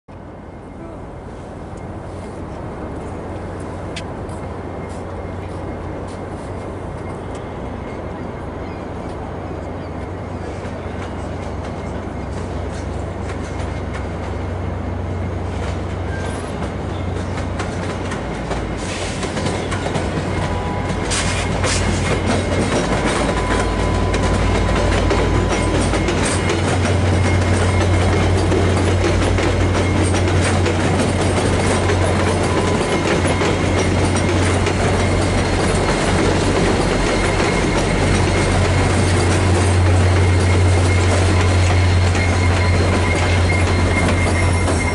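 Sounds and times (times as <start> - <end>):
diesel locomotive engine drone: 0.1 - 44.9
high wheel squeal: 4.7 - 17.4, 18.6 - 44.9
train wheels clicking over rail joints: 10.4 - 44.9.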